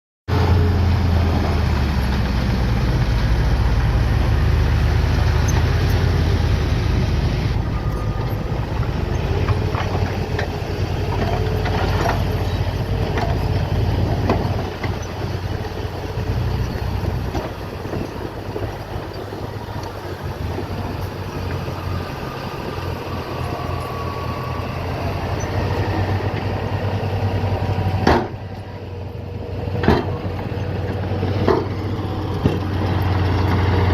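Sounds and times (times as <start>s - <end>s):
heavy diesel machinery rumbling: 0.3s - 33.9s
knocks and clanks: 7.6s - 15.8s, 28.0s - 28.4s, 29.8s - 31.8s.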